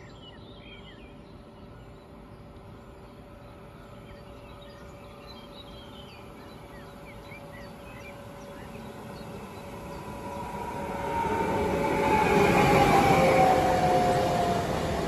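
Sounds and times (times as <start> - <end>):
songbirds chirping: 0.0 - 11.8
approaching electric train: 0.0 - 15.0.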